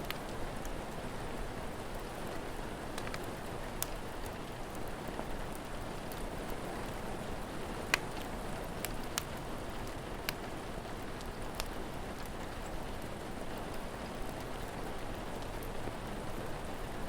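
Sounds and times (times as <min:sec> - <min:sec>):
steady rain falling: 0:00.0 - 0:17.0
wood fire crackling: 0:00.0 - 0:17.0.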